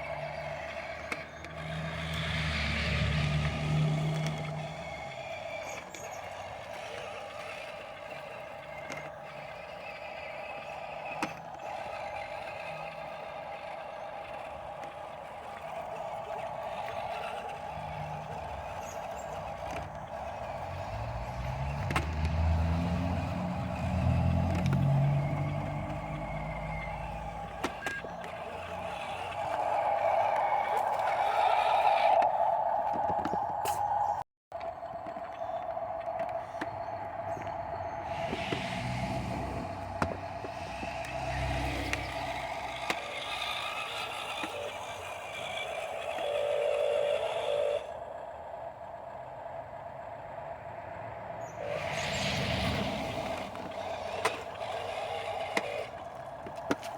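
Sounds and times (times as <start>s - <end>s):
electric motor whining: 0.0s - 33.5s, 35.0s - 50.6s, 51.4s - 56.9s
low rumble shifting pitch: 13.0s - 56.9s.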